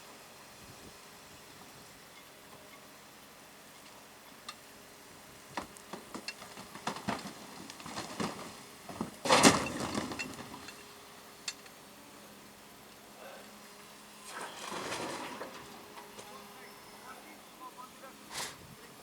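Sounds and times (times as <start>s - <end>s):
knocks and clatter: 5.5s - 10.8s.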